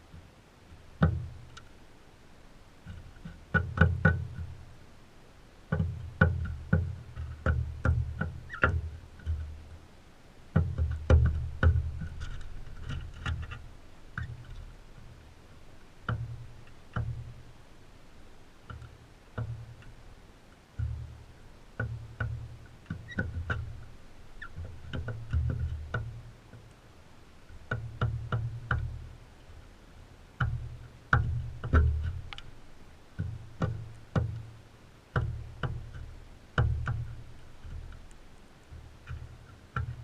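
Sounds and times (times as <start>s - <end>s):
birds pecking at feeder: 0.0s - 5.0s, 5.6s - 40.0s.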